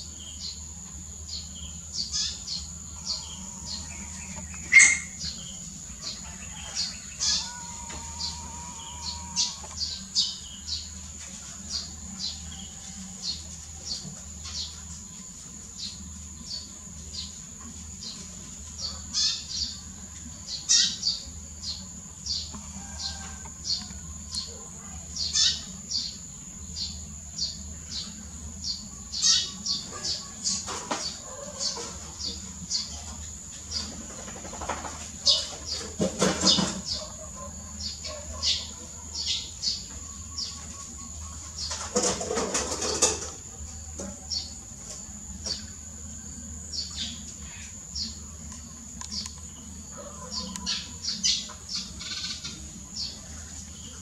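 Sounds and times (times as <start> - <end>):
high insect drone: 0.0 - 54.0
small bird chirping: 1.2 - 5.7.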